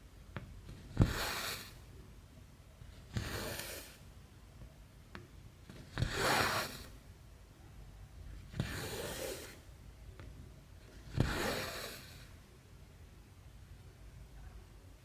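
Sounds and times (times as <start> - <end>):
thread rasping through cloth: 0.7 - 1.8, 3.0 - 4.0, 5.7 - 7.0, 10.9 - 12.4.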